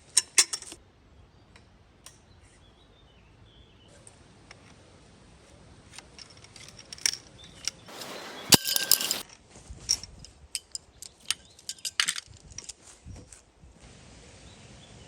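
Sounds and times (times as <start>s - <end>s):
loud metallic clinks: 7.9s - 9.2s.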